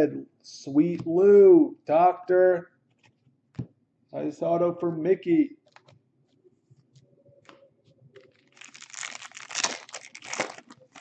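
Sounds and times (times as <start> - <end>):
foil wrapper tearing and crinkling: 8.3 - 11.0.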